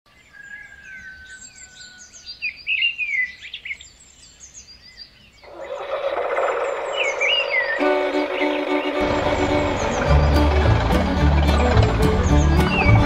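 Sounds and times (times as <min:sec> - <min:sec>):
birds chirping: 0:00.1 - 0:13.0
steady rushing sound: 0:05.5 - 0:13.0.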